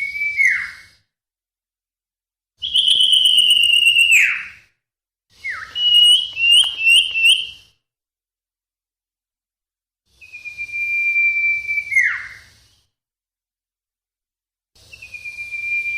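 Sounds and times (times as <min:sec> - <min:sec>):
bird whistling and chirping: 0:00.0 - 0:01.0, 0:02.6 - 0:04.6, 0:05.4 - 0:07.7, 0:10.2 - 0:12.8, 0:14.9 - 0:15.9.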